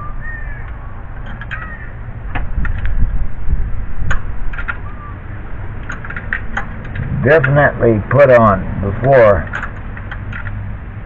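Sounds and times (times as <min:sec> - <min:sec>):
bird chirp: 0:00.0 - 0:02.0, 0:04.8 - 0:05.3
low rumble: 0:06.6 - 0:08.9.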